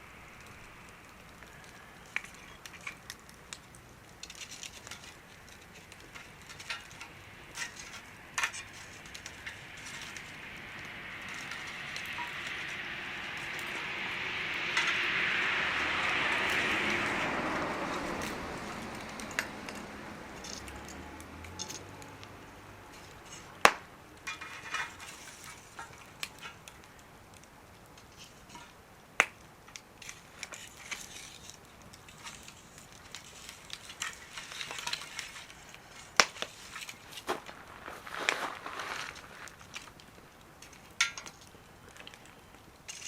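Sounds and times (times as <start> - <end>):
wood fire crackling and popping: 0.0 - 43.0
rushing noise: 7.1 - 23.5.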